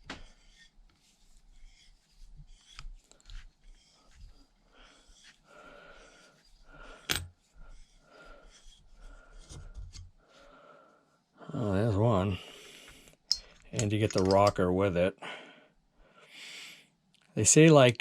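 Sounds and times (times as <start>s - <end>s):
metallic clicks and scrapes: 13.3s - 14.7s.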